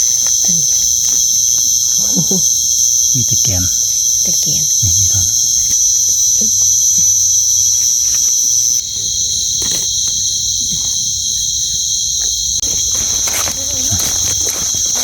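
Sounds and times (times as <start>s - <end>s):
chorus of night insects: 0.0s - 15.0s
faint rustles and clicks: 8.0s - 15.0s.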